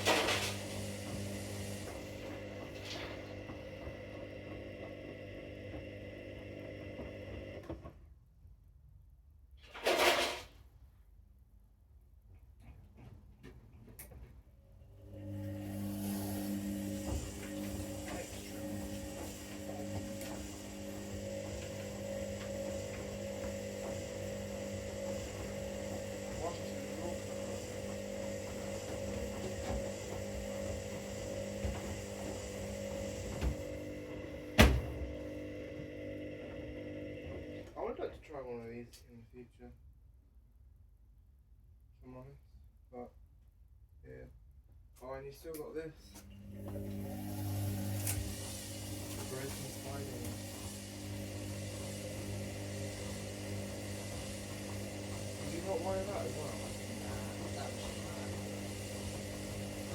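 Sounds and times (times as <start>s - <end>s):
washing machine motor humming: 0.0s - 7.8s, 14.8s - 37.9s, 46.2s - 59.9s.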